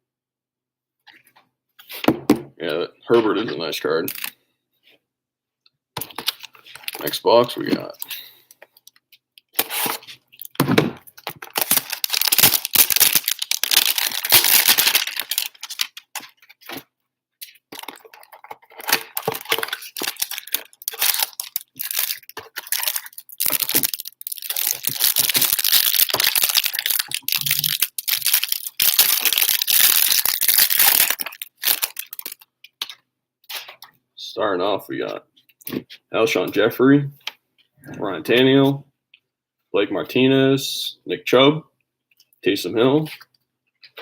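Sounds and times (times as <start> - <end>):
plastic wrapping tearing and crinkling: 4.1 - 4.3, 6.0 - 7.6, 9.4 - 33.8.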